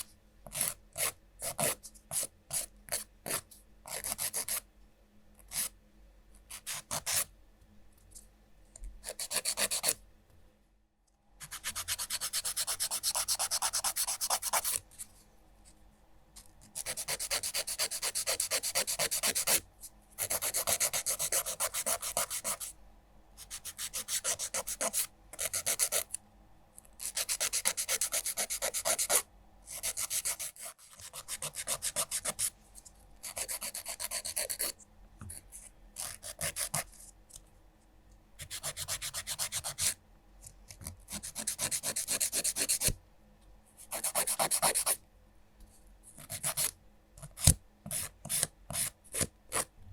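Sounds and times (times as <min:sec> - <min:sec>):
nail file rasping on fingernails: 0:11.4 - 0:14.8, 0:16.8 - 0:19.6.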